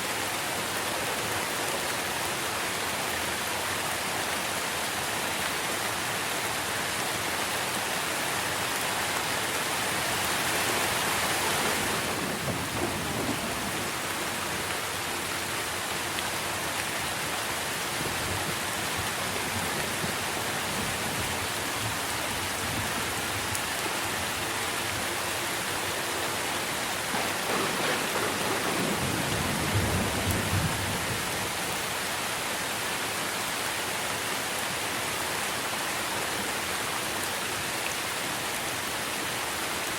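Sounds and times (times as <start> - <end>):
steady rain falling on trees: 0.0 - 39.9
low rumbles of thunder: 11.2 - 14.7, 27.0 - 31.4.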